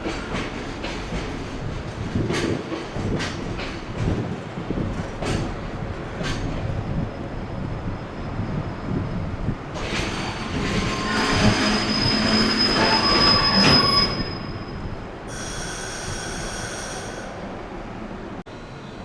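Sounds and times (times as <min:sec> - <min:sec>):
train passing with high squeal: 0:05.0 - 0:19.0
high steady tone: 0:15.3 - 0:17.5.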